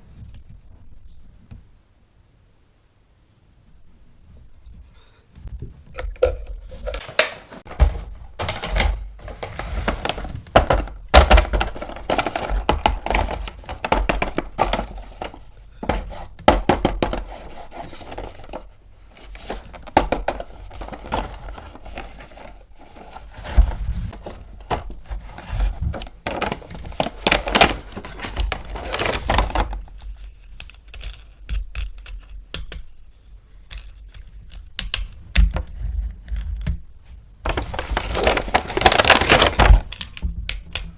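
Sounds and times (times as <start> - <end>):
packaging crinkling: 6.7 - 30.2, 37.5 - 40.2
plastic toy parts clicking and knocking: 10.5 - 17.5, 29.9 - 33.0, 33.6 - 36.8.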